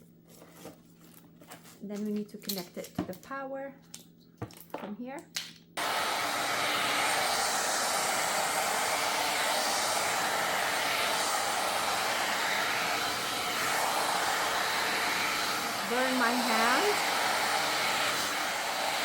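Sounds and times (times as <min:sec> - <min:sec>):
hair dryer blowing: 0:05.8 - 0:19.0.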